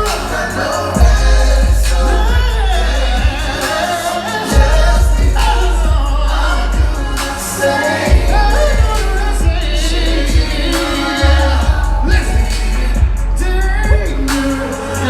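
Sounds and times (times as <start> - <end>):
heavy bass line: 0.0 - 15.0
person singing: 0.0 - 15.0
steady drum beat: 0.0 - 15.0.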